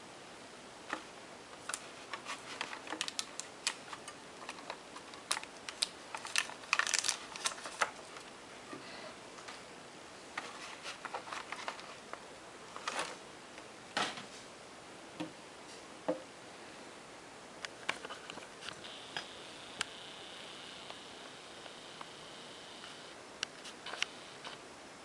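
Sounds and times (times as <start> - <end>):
plastic packaging rustling: 1.6 - 8.3, 10.4 - 13.2
faint steady high tone: 18.8 - 23.2.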